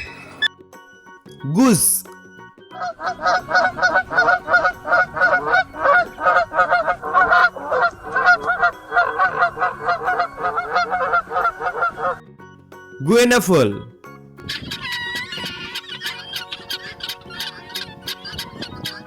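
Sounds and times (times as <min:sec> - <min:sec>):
goose honking: 0:03.0 - 0:12.2.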